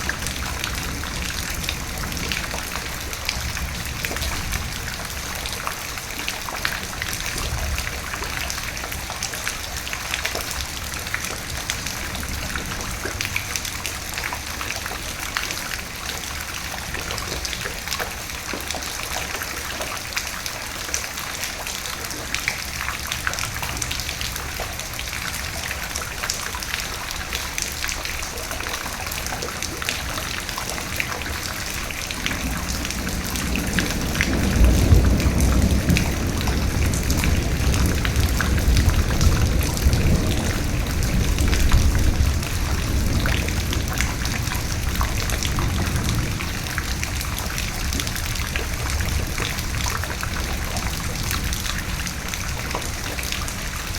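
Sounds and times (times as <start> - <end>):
thunder rumbling: 0.0 - 5.5, 30.8 - 53.9
raindrops ticking: 0.0 - 53.9
steady rain: 0.0 - 53.9.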